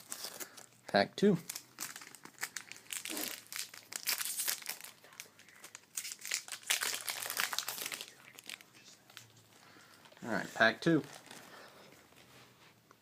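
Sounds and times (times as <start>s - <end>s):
foil wrapper crinkling and tearing: 0.0s - 0.8s, 1.5s - 9.2s, 11.0s - 11.6s.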